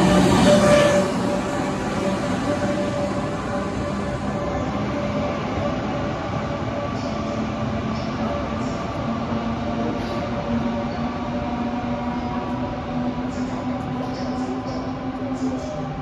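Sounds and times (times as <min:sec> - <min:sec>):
train accelerating away: 0:00.0 - 0:16.0.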